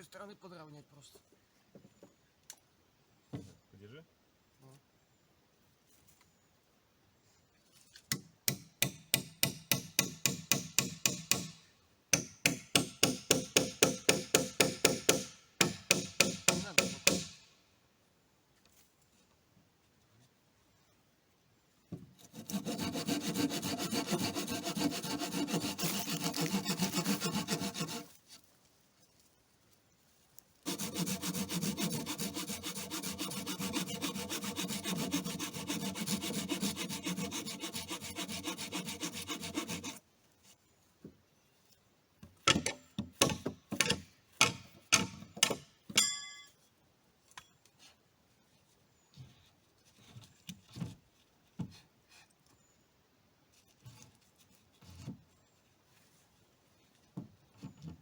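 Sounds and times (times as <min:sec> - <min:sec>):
saw cutting wood: 0:22.2 - 0:28.2, 0:30.6 - 0:40.0.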